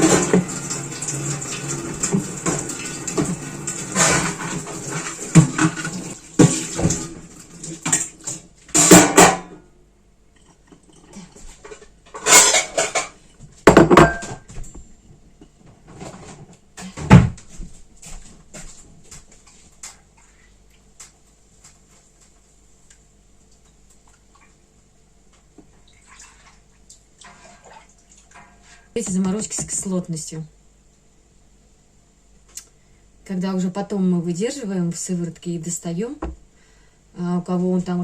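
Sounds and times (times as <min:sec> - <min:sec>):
dishes and pots clattering: 0:00.0 - 0:00.8, 0:02.0 - 0:09.6, 0:10.3 - 0:14.7.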